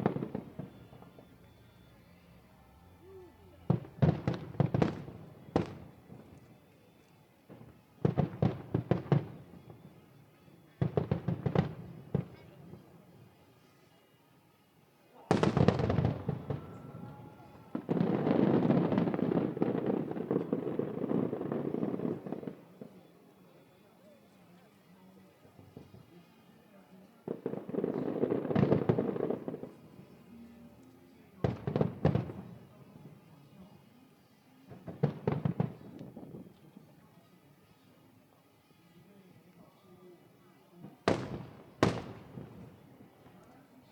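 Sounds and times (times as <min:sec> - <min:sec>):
fireworks sharp bangs: 0:00.0 - 0:01.8, 0:03.5 - 0:06.4, 0:15.3 - 0:22.7, 0:27.3 - 0:30.2, 0:31.4 - 0:32.9, 0:34.7 - 0:36.5, 0:41.1 - 0:43.3
fireworks crackling bursts: 0:00.0 - 0:13.3, 0:15.1 - 0:23.9, 0:25.3 - 0:38.2, 0:40.2 - 0:43.9.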